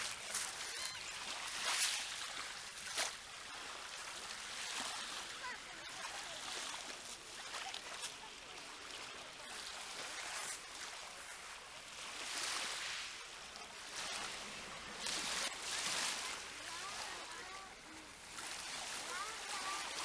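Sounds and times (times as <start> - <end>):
sea water washing and splashing: 0.0 - 20.0
faint voices: 16.0 - 20.0.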